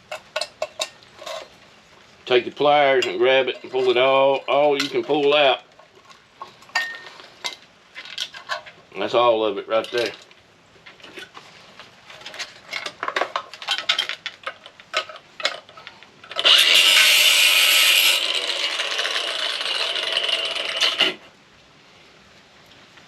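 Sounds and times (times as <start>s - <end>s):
loud scraping grinding noise: 2.3s - 5.6s, 16.3s - 21.3s
metal parts clicking and rattling: 12.1s - 17.3s.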